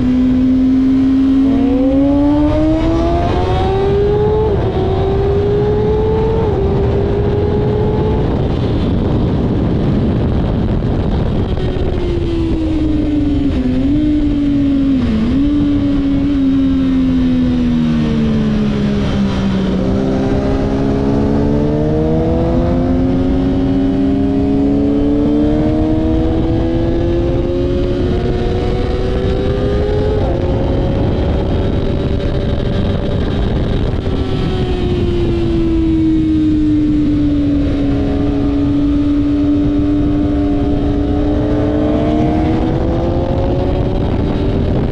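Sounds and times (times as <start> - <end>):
motorcycle engine at speed: 0.0 - 44.9
wind rush on microphone: 0.0 - 44.9.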